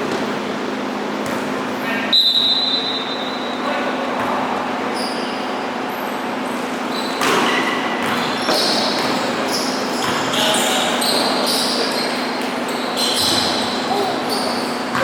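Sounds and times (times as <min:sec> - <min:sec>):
steady hall hum: 0:00.0 - 0:15.0
sneakers squeaking on court: 0:04.2 - 0:15.0
basketball bouncing: 0:07.2 - 0:09.4.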